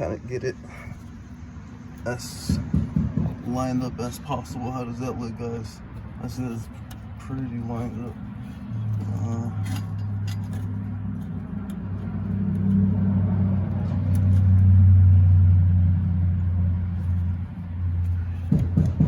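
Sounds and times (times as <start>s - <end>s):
vehicle engine humming: 0.0s - 19.0s
dull thumps: 18.2s - 19.0s.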